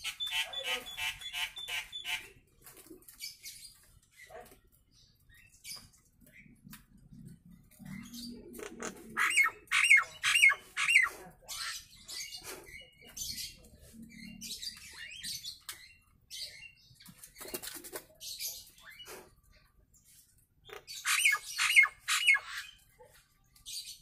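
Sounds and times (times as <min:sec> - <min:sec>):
myna rasping chatter and clicks: 0:00.0 - 0:16.2.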